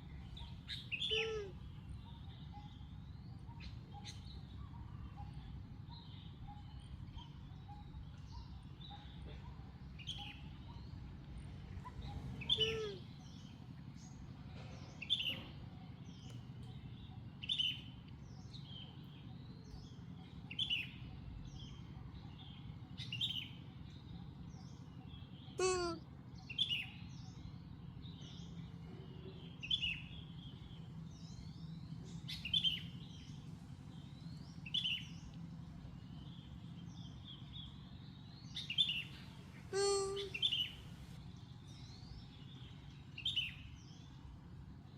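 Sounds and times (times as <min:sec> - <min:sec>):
bird chirping: 0:00.0 - 0:11.1, 0:11.8 - 0:14.3, 0:14.9 - 0:44.9
steady low hum: 0:00.0 - 0:44.9
longer falling bird calls: 0:38.6 - 0:41.0.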